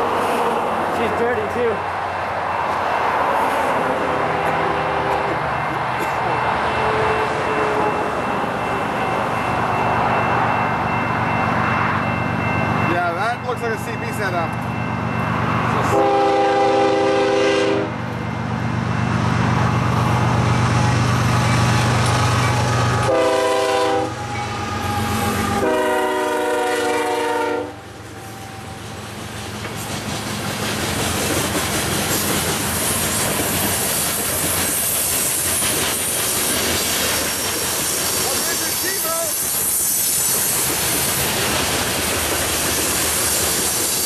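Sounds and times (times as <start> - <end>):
train cars rolling on rails: 0.0 - 17.4, 18.0 - 44.0
locomotive air horn: 4.3 - 5.4, 6.2 - 8.2, 15.9 - 18.0, 23.0 - 28.8.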